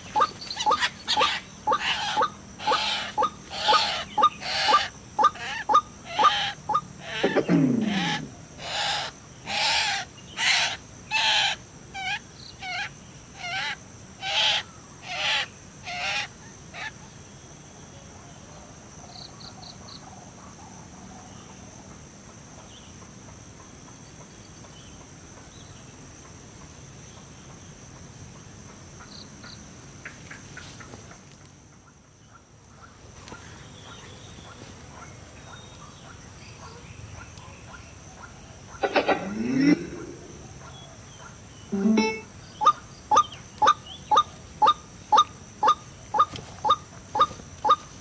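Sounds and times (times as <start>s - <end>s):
bird hooting calls: 0.0s - 11.6s, 38.8s - 40.8s, 41.7s - 47.8s
high insect drone: 0.0s - 18.1s, 38.5s - 48.0s.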